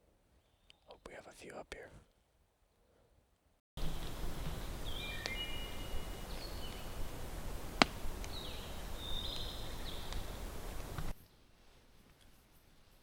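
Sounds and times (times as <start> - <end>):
songbirds singing high notes: 3.8 - 11.1.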